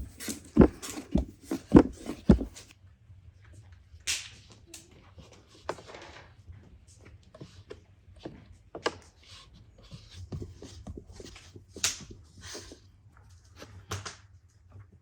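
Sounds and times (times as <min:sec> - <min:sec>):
objects being handled: 0:00.0 - 0:02.7.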